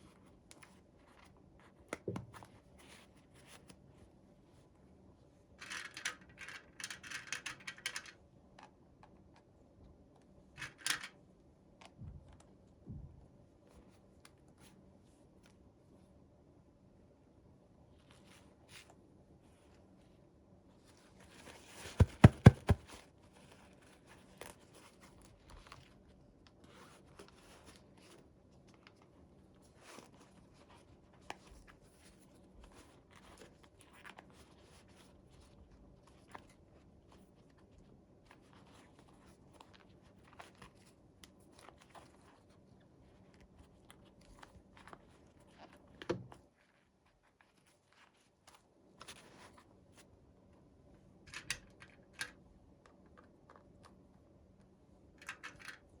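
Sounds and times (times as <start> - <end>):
knock: 22.0 - 22.8.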